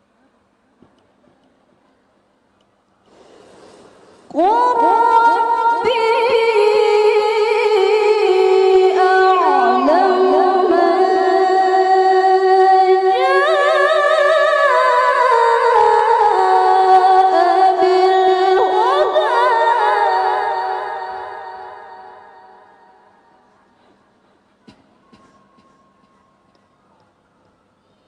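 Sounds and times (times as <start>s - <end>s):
woman reciting melodically: 4.3s - 23.0s.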